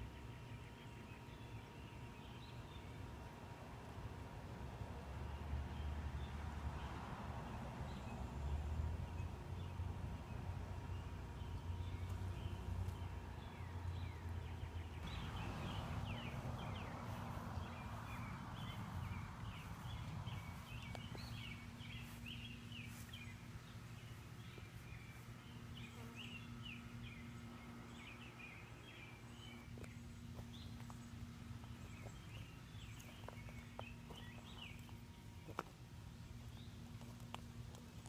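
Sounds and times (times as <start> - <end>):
faint low hum: 0.0 - 38.0
birds chirping: 10.9 - 38.0
low rumble: 15.0 - 23.5.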